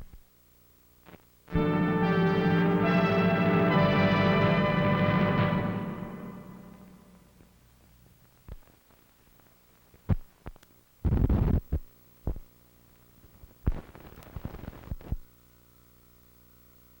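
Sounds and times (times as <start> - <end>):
static bursts and crackling: 0.0 - 1.6, 8.2 - 15.3
steady electrical hum: 0.0 - 17.0.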